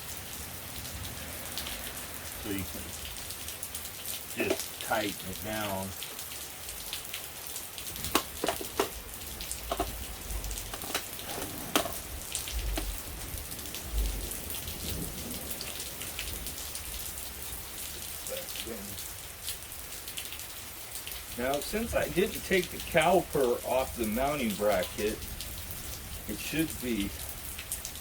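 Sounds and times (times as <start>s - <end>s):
rain falling on a surface: 0.0s - 28.0s
sharp drips and taps: 1.5s - 13.2s, 17.7s - 25.6s, 26.3s - 27.9s.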